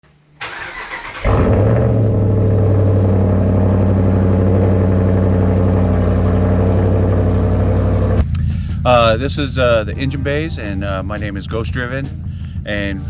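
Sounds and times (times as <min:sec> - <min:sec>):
engine starter cranking: 0:00.4 - 0:02.6
loud engine idling: 0:00.4 - 0:13.0.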